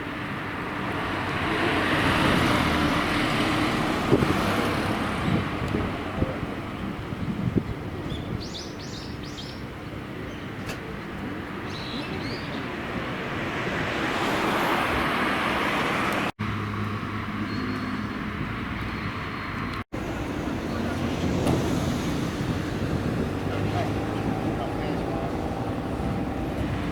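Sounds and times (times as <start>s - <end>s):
car passing: 0.0s - 6.9s, 12.2s - 26.9s
low engine hum: 0.0s - 26.9s
roadside car noise: 0.0s - 26.9s
birds chirping: 7.6s - 12.9s, 17.4s - 21.0s.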